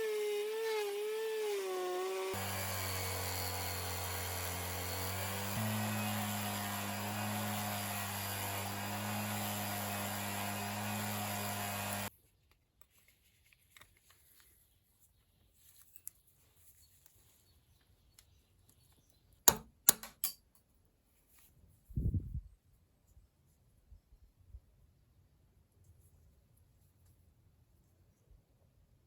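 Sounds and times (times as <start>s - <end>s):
electric power tool running: 0.0s - 12.1s.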